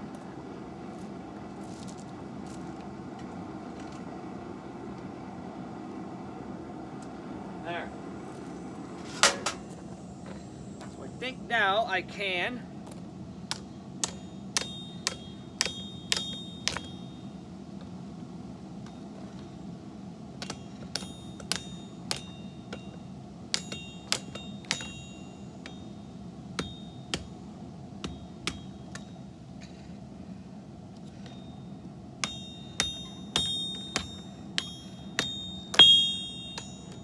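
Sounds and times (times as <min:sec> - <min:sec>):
steady low hum: 0:00.0 - 0:37.0
hammer striking steel on anvil: 0:09.2 - 0:09.7, 0:13.5 - 0:17.4, 0:20.4 - 0:29.4, 0:31.1 - 0:37.0.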